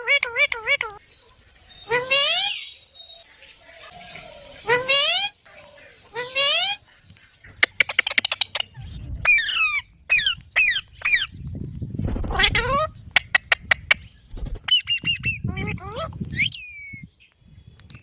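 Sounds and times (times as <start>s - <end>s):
parrot squawking: 1.9s - 2.7s, 4.6s - 5.4s, 6.0s - 6.8s, 7.6s - 11.3s, 12.2s - 13.9s, 14.7s - 17.0s
sharp clicks: 16.1s - 18.0s.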